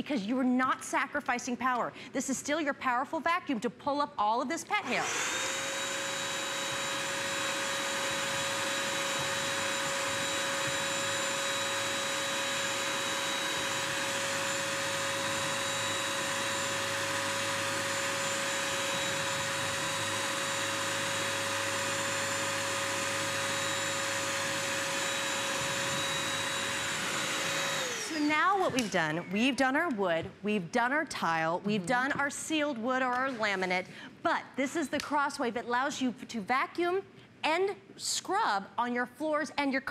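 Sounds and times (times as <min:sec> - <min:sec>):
wet dry vacuum motor whine: 0:04.8 - 0:29.1.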